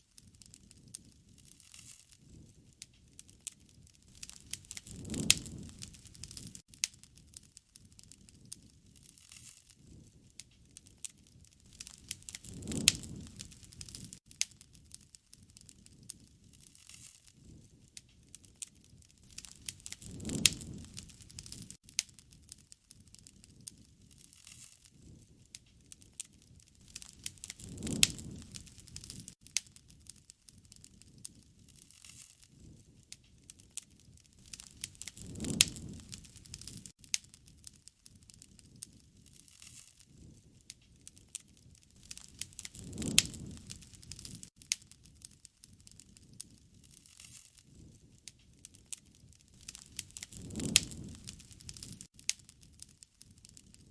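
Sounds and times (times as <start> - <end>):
wood fire crackling: 0.0 - 53.9
low rumble of flame: 0.1 - 53.9
sharp fire pops: 0.2 - 53.9.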